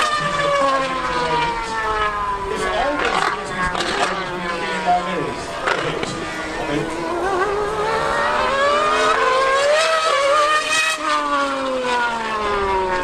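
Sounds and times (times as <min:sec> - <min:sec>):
racing engine accelerating past: 0:00.0 - 0:13.0.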